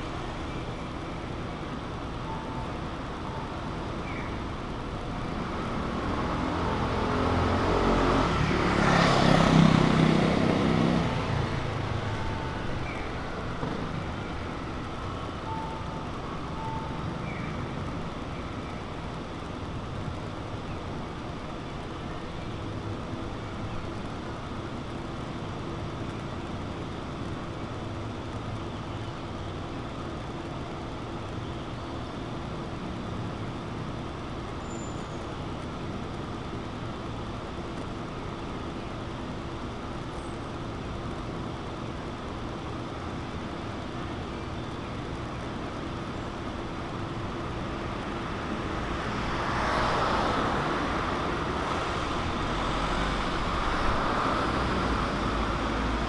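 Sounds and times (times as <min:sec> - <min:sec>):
city street traffic: 0:00.0 - 0:56.0
vehicle passing: 0:05.5 - 0:12.1.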